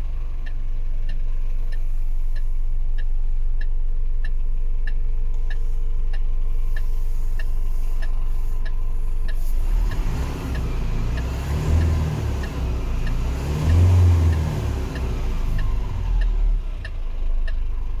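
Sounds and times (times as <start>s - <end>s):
engine ticking: 0.0s - 18.0s
diesel truck engine revving: 6.4s - 18.0s.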